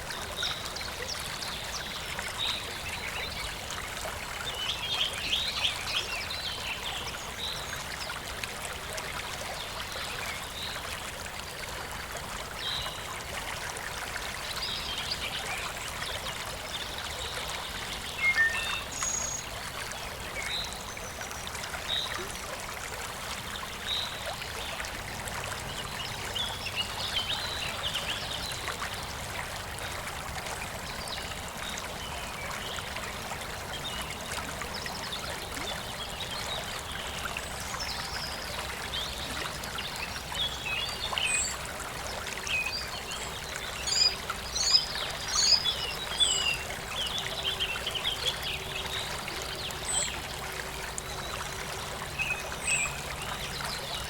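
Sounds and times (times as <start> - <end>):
stream water running: 0.0 - 54.0.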